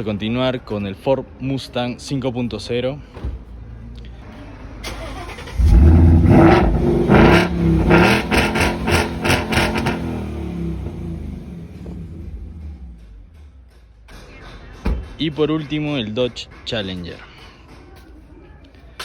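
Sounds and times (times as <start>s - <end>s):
car engine revving: 4.9s - 13.8s.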